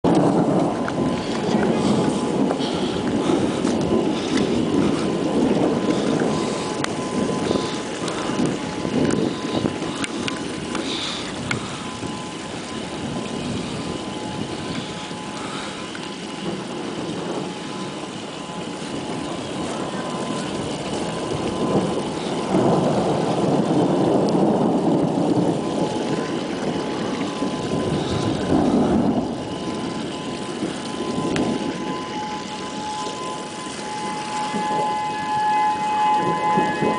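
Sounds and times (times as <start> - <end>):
wind buffeting microphone: 0.0 - 36.9
faint two-note high tone: 30.2 - 36.9.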